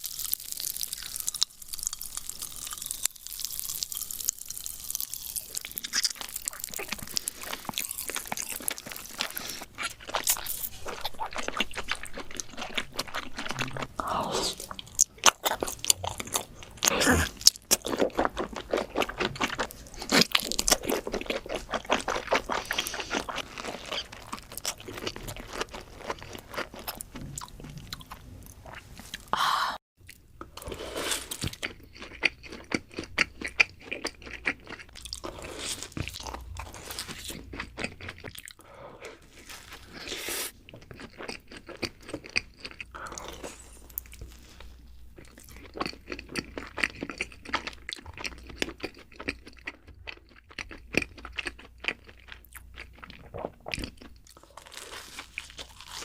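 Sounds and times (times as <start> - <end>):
crunchy food being chewed: 0.0 - 29.3, 30.0 - 56.0.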